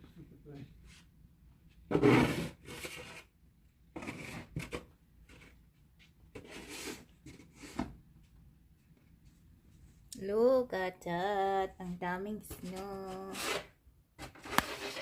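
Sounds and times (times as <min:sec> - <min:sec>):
snow shovel scraping snow: 0:14.4 - 0:15.0.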